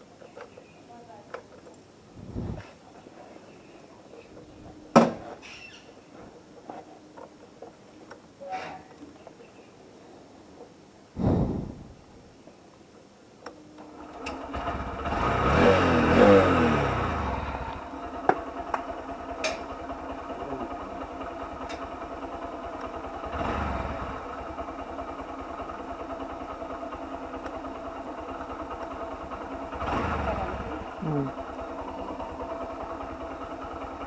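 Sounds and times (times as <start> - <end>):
motorcycle engine revving and idling: 2.2 - 2.6, 13.8 - 34.0.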